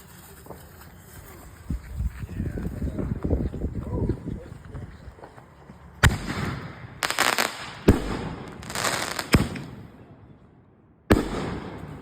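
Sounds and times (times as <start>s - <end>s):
fireworks crackling: 0.0s - 2.2s, 6.0s - 9.8s
fireworks bangs: 6.0s - 9.9s, 11.1s - 12.0s.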